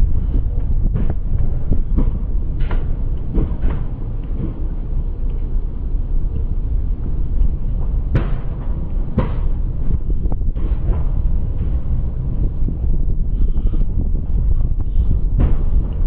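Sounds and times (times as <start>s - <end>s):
wind buffeting microphone: 0.0s - 16.0s
train wheels knocking on track: 0.1s - 4.7s, 7.0s - 16.0s.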